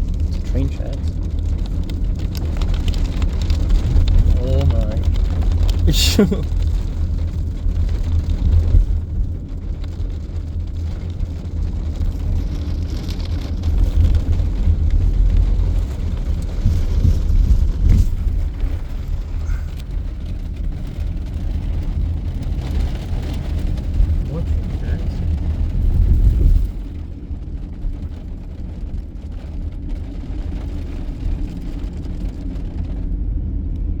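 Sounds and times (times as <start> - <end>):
car road rumble from inside: 0.0 - 34.0.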